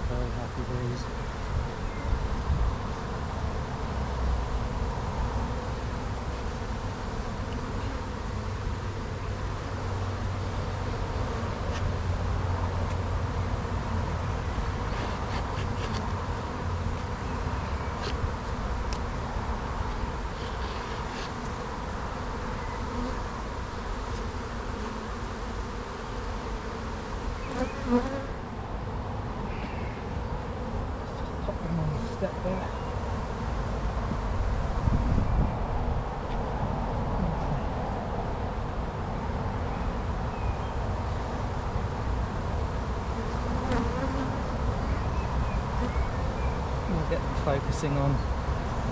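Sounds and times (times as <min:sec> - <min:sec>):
wind rumbling on microphone: 0:00.0 - 0:06.3, 0:32.8 - 0:42.8
bees buzzing: 0:00.4 - 0:35.1, 0:38.7 - 0:48.7.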